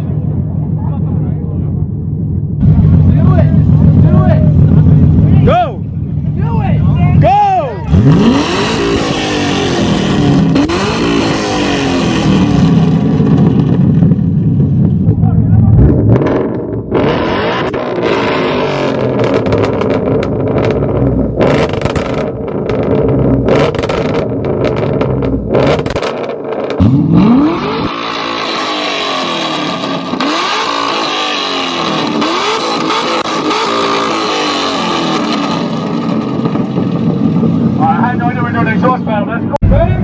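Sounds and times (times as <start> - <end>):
car engine revving: 0.0 - 40.0
exhaust crackles: 0.1 - 40.0.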